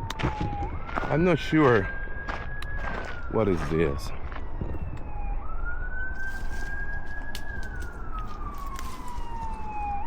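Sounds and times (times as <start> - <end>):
siren wailing: 0.0 - 10.0.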